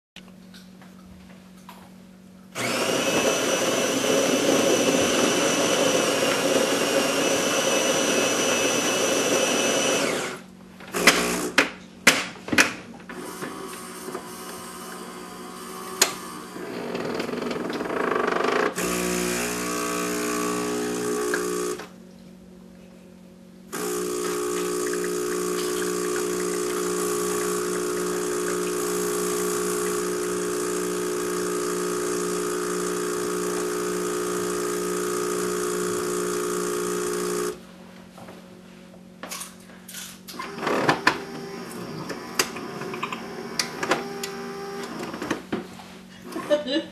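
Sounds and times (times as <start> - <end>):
vibration pump buzzing: 0.4 - 11.8, 13.0 - 22.7, 23.4 - 38.3, 40.2 - 46.9
coffee grinder running: 2.6 - 11.6, 13.1 - 21.9, 23.7 - 37.6, 40.3 - 45.4
brew unit clunking: 23.8 - 32.6.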